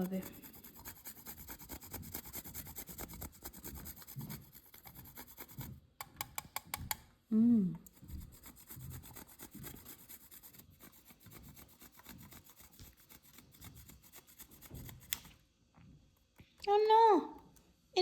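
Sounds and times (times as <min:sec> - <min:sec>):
chocolate scraping on a grater: 0:00.0 - 0:05.8, 0:07.9 - 0:15.3.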